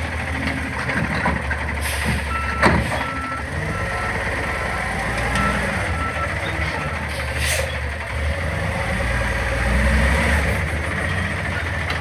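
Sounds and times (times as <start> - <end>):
garbage truck engine running: 0.0 - 12.0
truck backup alarm beeping: 1.6 - 7.9.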